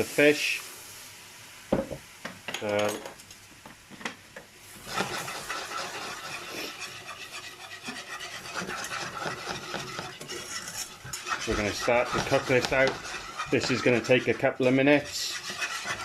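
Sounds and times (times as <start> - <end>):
whisk scraping in a saucepan: 4.7 - 16.0.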